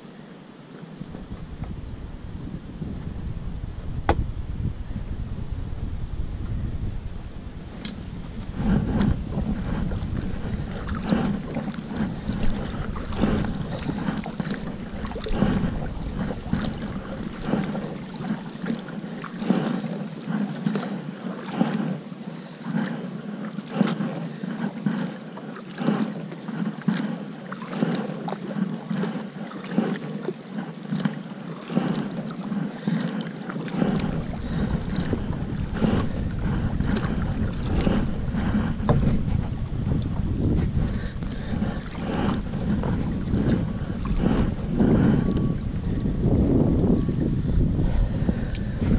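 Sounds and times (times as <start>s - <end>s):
wash of moving water: 0.0s - 48.9s
wind buffeting microphone: 0.9s - 21.8s, 31.6s - 48.9s
paddle splashes: 7.4s - 48.9s.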